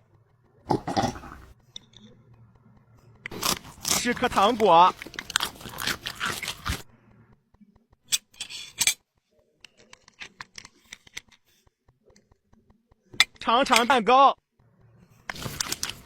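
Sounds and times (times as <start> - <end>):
toy kitchen pieces scraping: 3.2 - 6.9, 8.0 - 12.4, 13.2 - 14.1, 15.0 - 16.0.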